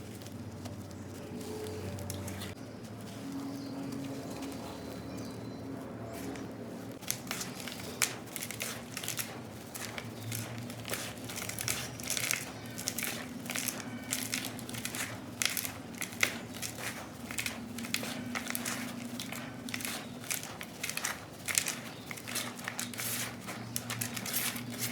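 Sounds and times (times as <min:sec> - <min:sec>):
sand crumbling with crunches: 0:06.2 - 0:24.9.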